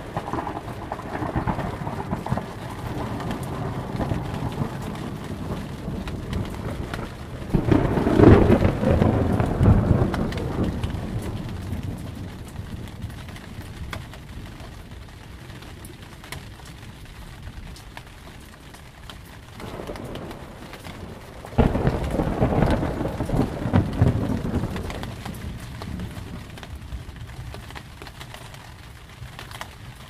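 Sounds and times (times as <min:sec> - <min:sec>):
raindrop taps: 0:00.0 - 0:30.0
steady rain: 0:00.0 - 0:30.0
thunder crack and rumble: 0:00.0 - 0:30.0.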